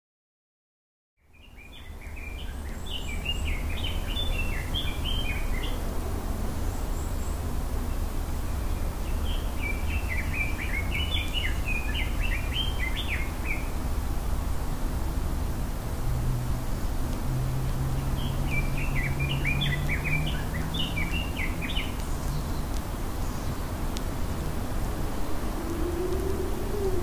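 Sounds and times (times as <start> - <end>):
small bird singing: 1.2 - 5.8, 6.6 - 13.8, 18.0 - 23.8.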